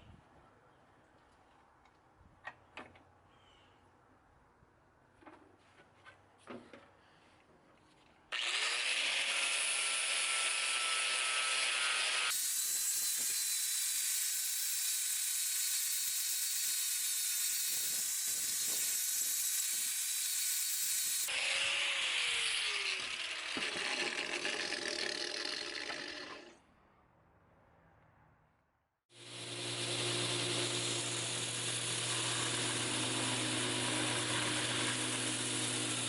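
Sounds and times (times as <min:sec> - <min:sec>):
power tool grinding: 0:08.3 - 0:26.6, 0:29.1 - 0:36.0.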